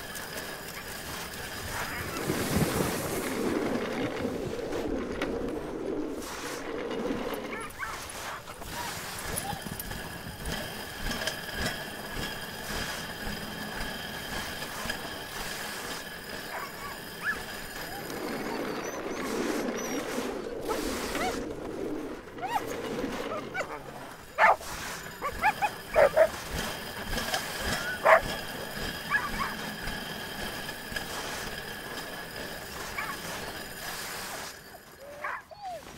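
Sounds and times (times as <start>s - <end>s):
sled gliding over snow: 0.0s - 35.9s
dogs yipping and barking: 7.4s - 10.6s, 16.3s - 21.4s, 22.3s - 29.9s, 32.8s - 33.5s, 35.0s - 35.9s.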